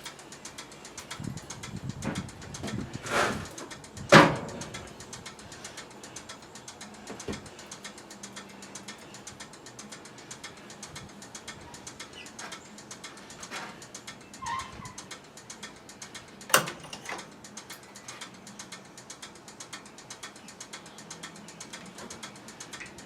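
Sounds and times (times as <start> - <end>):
steady fast ticking: 0.0 - 23.0
short scrape: 2.7 - 3.6
sharp metallic clank: 16.5 - 17.3.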